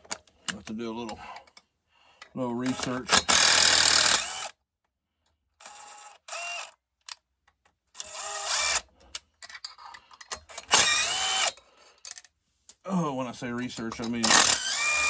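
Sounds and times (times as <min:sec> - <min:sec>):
small clicks of tools: 0:00.0 - 0:12.8
power drill spinning up: 0:02.7 - 0:04.5, 0:08.0 - 0:08.9, 0:10.6 - 0:11.6, 0:14.2 - 0:15.0.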